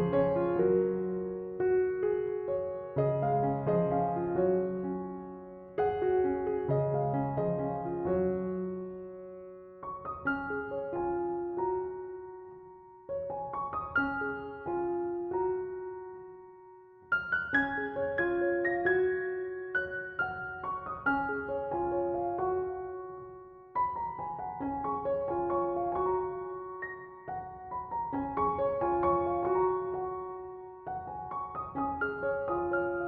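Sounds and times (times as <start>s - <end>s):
gentle piano music: 0.0s - 33.0s.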